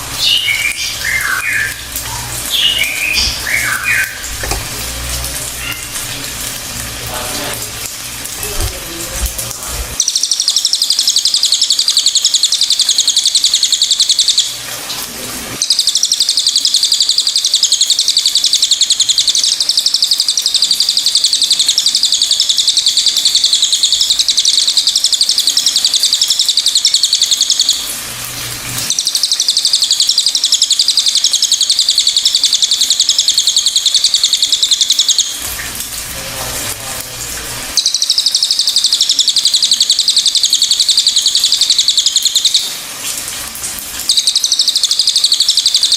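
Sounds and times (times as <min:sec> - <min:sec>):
songbird chattering song: 0:00.2 - 0:04.6, 0:15.6 - 0:27.8, 0:28.9 - 0:35.4, 0:37.8 - 0:42.7, 0:44.1 - 0:45.9.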